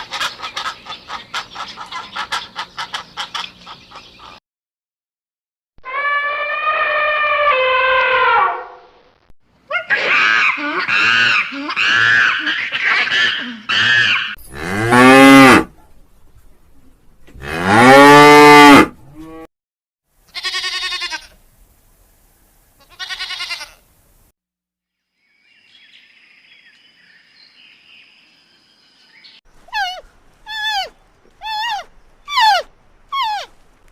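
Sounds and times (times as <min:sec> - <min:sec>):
cow mooing: 0:13.7 - 0:15.7, 0:17.4 - 0:19.5
short animal calls: 0:29.7 - 0:33.6.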